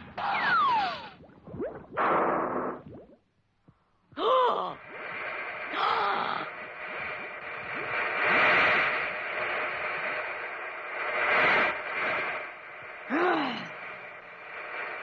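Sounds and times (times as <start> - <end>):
sliding-pitch bloops: 0.1 - 3.4.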